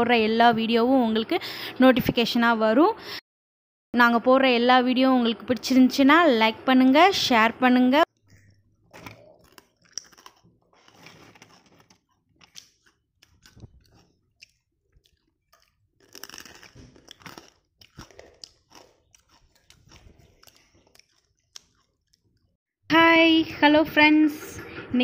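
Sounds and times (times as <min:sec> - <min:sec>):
crunching of fried snack: 0:08.4 - 0:22.6.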